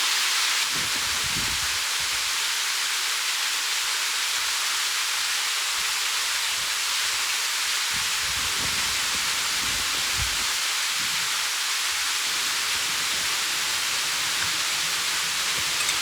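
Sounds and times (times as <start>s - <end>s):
mountain stream rushing: 7.2s - 16.0s.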